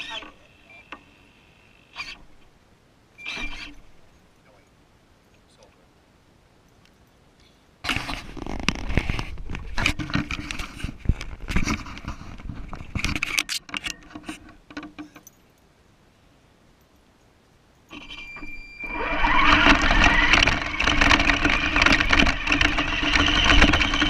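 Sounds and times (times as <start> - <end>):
hard parts clattering and rattling: 7.9 - 15.4, 19.3 - 24.0.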